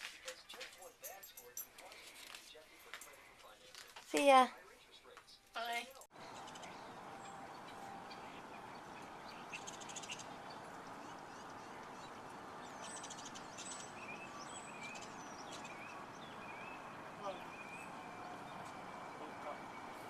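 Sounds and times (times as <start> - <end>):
birds chirping: 4.3 - 20.0
buzzy bird trill: 6.2 - 18.1.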